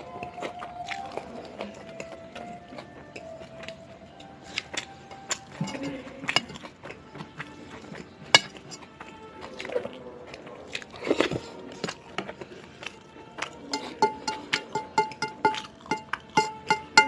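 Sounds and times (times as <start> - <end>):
chewing: 0.0 - 17.0
soft plucked background music: 0.0 - 17.0
cutlery clinking on plate: 5.5 - 6.7, 8.3 - 8.8, 13.7 - 17.0.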